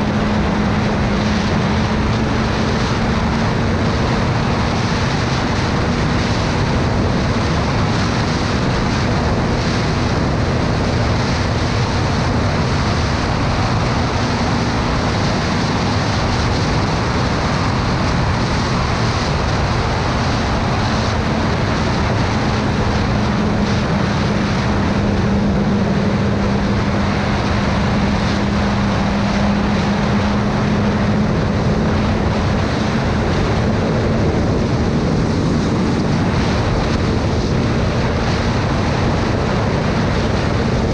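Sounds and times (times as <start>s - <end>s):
motorcycle engine hum: 0.0s - 40.9s
wind rush on microphone: 0.0s - 40.9s.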